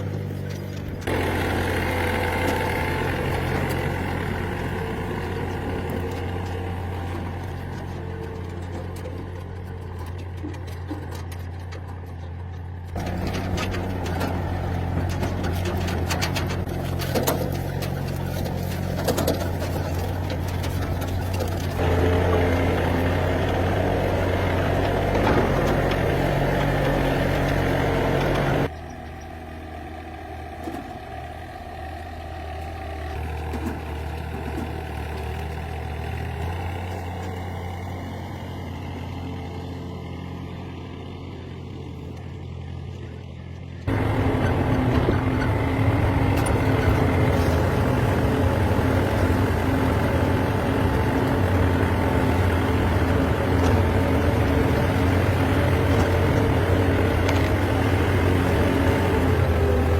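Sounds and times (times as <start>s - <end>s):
machine motor humming: 0.8s - 9.6s, 13.0s - 29.4s, 43.8s - 59.9s.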